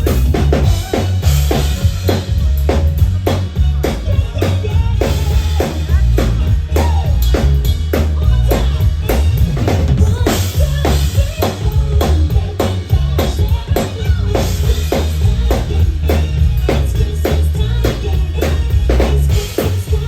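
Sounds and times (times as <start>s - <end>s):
drum kit beat: 0.0s - 20.0s
live band playing: 0.0s - 20.0s.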